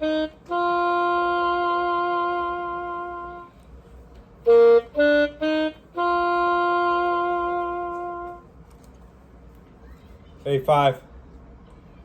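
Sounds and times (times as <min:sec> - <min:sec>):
digital saxophone notes: 0:00.0 - 0:03.6, 0:04.4 - 0:08.5.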